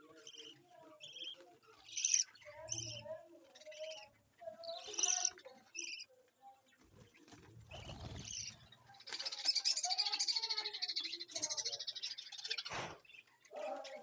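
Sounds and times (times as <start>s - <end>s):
budgerigars chattering: 0.0s - 6.1s, 7.7s - 14.0s.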